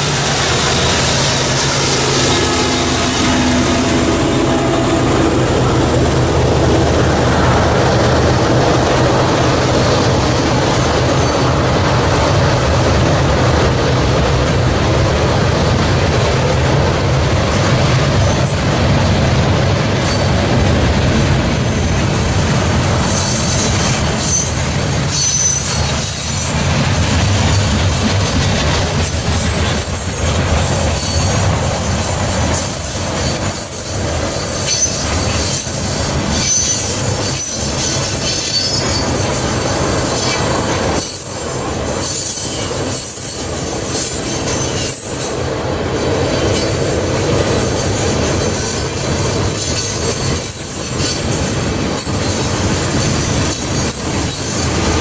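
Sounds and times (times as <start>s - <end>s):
train cars rumbling on rails: 0.0s - 55.0s
wheel squeal: 22.3s - 26.4s, 28.8s - 45.5s.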